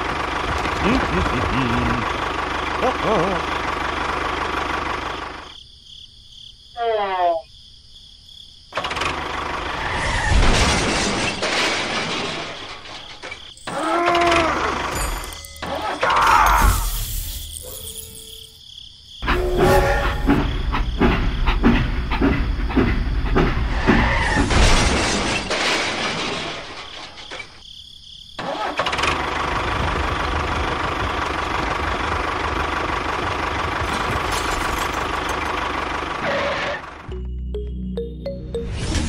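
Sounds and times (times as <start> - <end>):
tractor engine running: 0.0 - 5.6, 8.8 - 9.9, 10.9 - 18.6, 19.2 - 24.0, 28.4 - 38.3
engine knocking: 1.7 - 5.4, 28.9 - 34.3.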